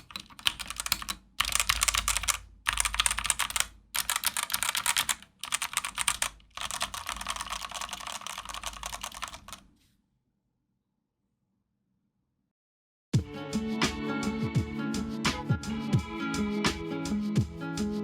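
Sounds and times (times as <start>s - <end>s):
mechanical keyboard key clicks: 0.0s - 9.6s.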